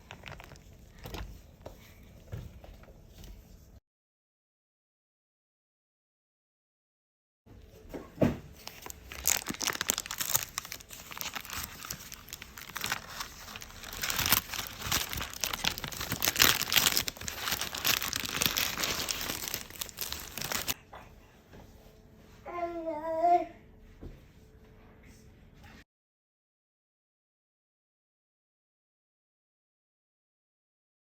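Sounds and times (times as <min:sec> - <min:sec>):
stiff paper crinkling and tearing: 0:00.0 - 0:00.7, 0:08.6 - 0:20.8.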